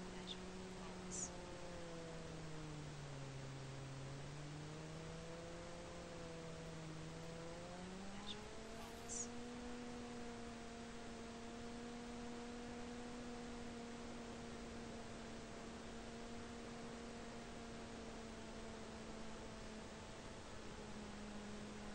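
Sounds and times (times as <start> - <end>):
model plane propeller droning: 0.0 - 21.9.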